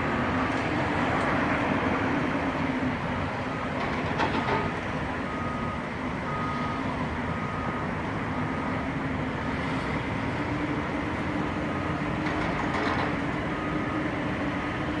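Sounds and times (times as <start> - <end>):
heavy construction machinery running: 0.0 - 15.0
reversing alarm beeping: 5.2 - 8.8, 13.5 - 14.2.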